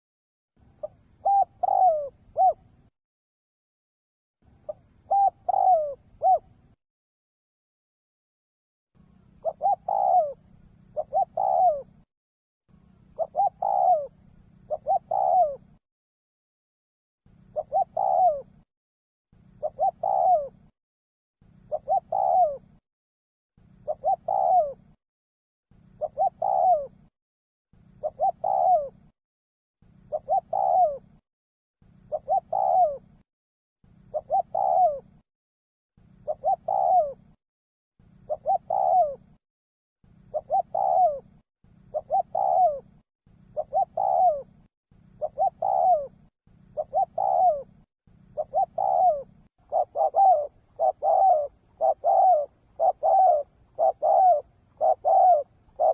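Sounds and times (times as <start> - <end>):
dove cooing: 0.7 - 2.9, 4.5 - 6.8, 9.2 - 12.1, 13.0 - 15.8, 17.4 - 18.6, 19.4 - 20.7, 21.5 - 22.8, 23.7 - 25.0, 25.8 - 27.1, 27.8 - 29.1, 29.9 - 31.2, 32.0 - 33.2, 33.9 - 35.2, 36.1 - 37.4, 38.1 - 39.4, 40.2 - 55.9.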